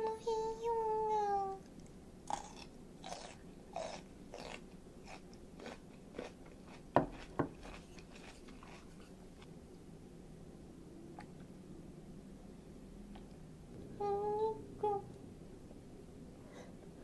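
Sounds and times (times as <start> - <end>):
wet chewing: 1.8 - 9.5.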